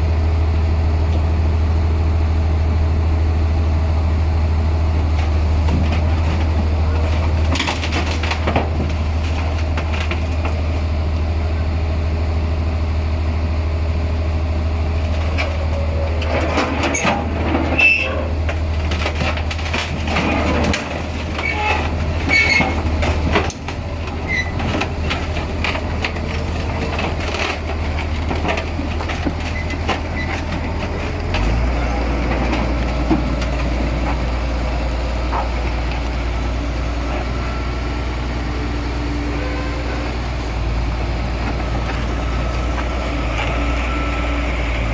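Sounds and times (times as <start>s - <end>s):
bulldozer diesel engine running: 0.0s - 44.9s
metallic clanking and rattling: 5.2s - 10.6s, 15.1s - 37.4s.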